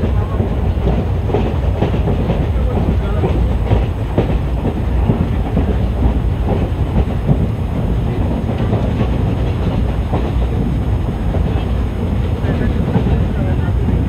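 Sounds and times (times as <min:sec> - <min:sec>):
clanks over rail joints: 0:00.0 - 0:14.0
rumble of wheels on rail: 0:00.0 - 0:14.0.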